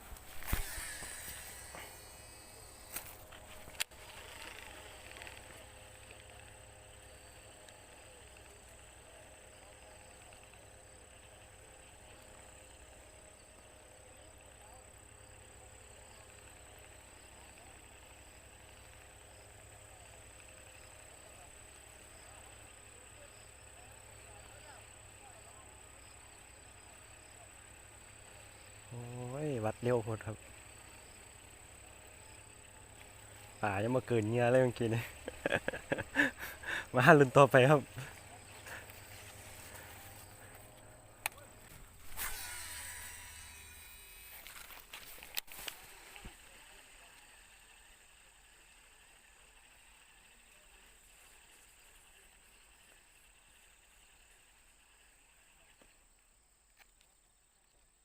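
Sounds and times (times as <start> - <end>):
high-pitched whine: 0.0 - 6.3, 41.3 - 46.3
fishing line whirring off spool: 0.0 - 12.3, 27.0 - 55.6
low hum: 0.0 - 14.2, 30.4 - 47.9
fishing reel click: 0.4 - 5.5.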